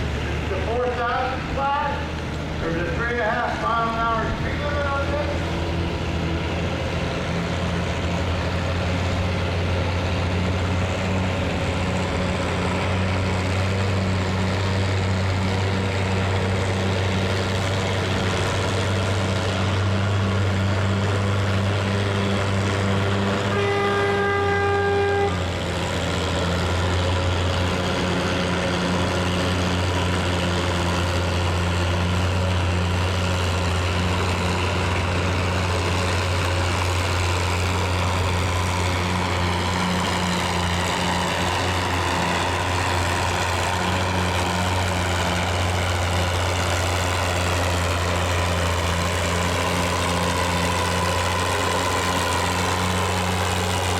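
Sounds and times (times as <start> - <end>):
tractor engine running: 0.0 - 53.9
horn held tone: 23.3 - 25.5.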